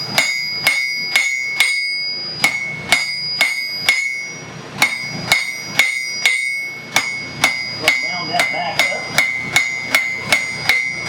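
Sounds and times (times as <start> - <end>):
hammer striking steel on anvil: 0.0 - 11.0.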